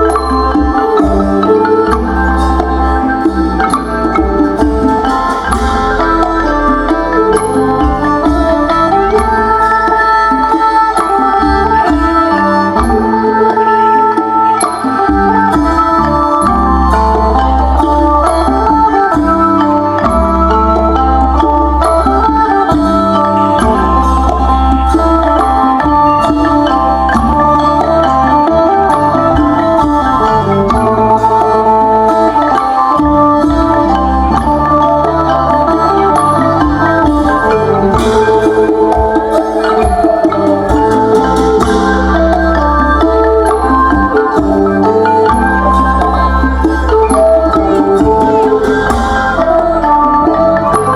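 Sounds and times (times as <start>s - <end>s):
steady drum beat: 0.0s - 13.6s, 14.4s - 50.9s
plucked string melody: 0.0s - 50.9s.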